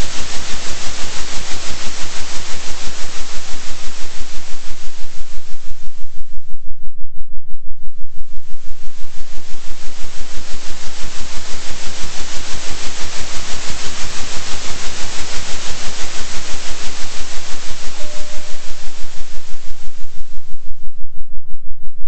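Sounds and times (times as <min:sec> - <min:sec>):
pulsing synthetic noise hiss: 0:00.0 - 0:06.6, 0:08.1 - 0:21.0
short tone: 0:18.0 - 0:18.6.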